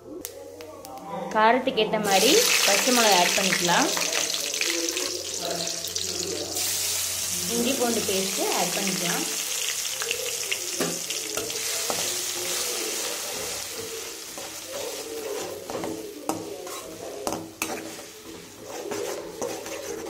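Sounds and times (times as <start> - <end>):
paste sizzling in hot oil: 2.0 - 20.0
metal spatula scraping pan: 10.8 - 20.0
spatula taps: 13.3 - 20.0.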